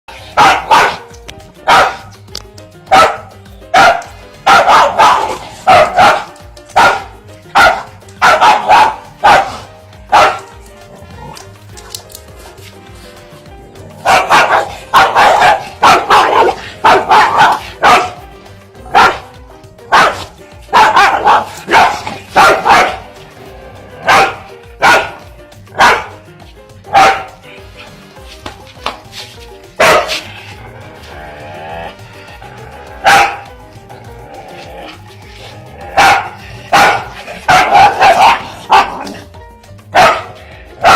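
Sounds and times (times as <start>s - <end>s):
background music: 0.0s - 40.9s
dog barking: 0.2s - 2.1s, 2.9s - 10.5s, 14.0s - 18.2s, 18.8s - 19.3s, 19.9s - 23.1s, 24.0s - 26.2s, 26.9s - 27.5s, 29.8s - 30.3s, 33.0s - 33.5s, 36.0s - 39.3s, 39.9s - 40.9s.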